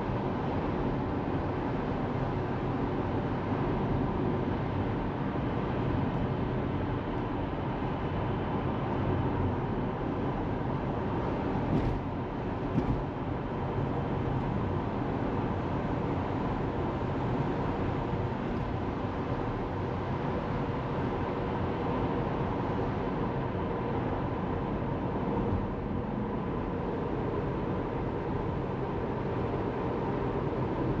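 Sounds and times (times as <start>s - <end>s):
tyre and road noise: 11.7s - 13.2s.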